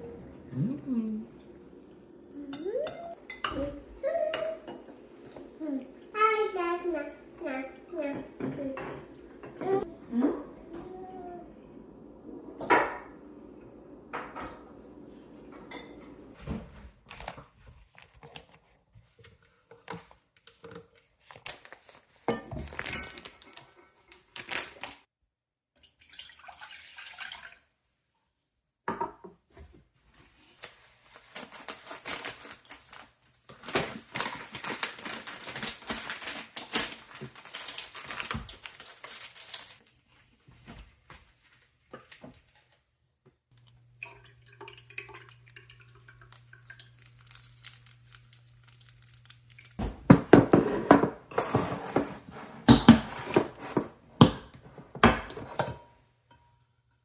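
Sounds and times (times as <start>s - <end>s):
dishes and cutlery clattering: 2.5s - 5.5s, 8.2s - 9.9s, 15.5s - 16.4s, 22.3s - 23.5s, 50.1s - 56.6s.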